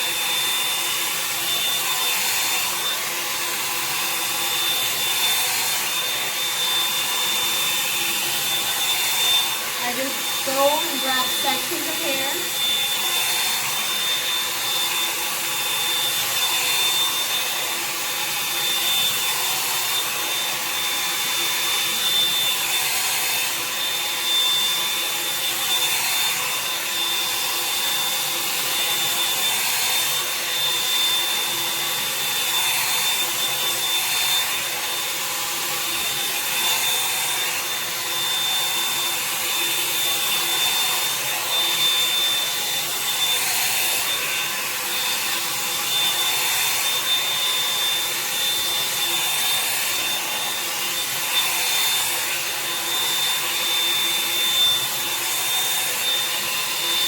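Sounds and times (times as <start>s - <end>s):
hair dryer brush whining: 0.0s - 57.0s.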